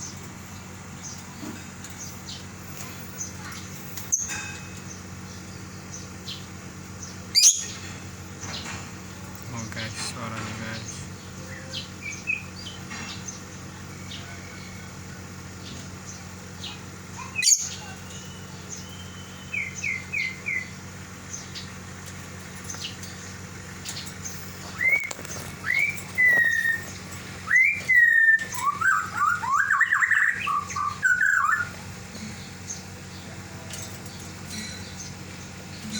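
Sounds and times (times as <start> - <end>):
bird chirping: 0.0 - 14.8, 15.5 - 35.9.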